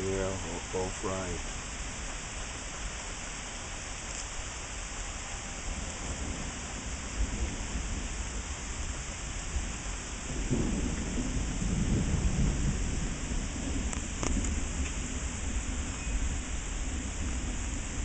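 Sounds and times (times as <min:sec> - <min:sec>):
steady rain: 0:00.0 - 0:18.0
thunder rumble: 0:05.4 - 0:18.0.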